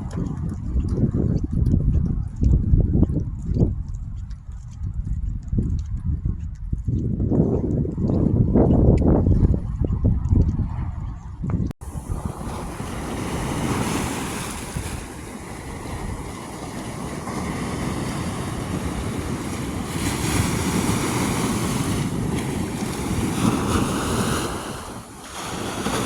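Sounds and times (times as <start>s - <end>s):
wind buffeting microphone: 0.0s - 26.0s
ocean surf washing onto beach: 11.8s - 26.0s.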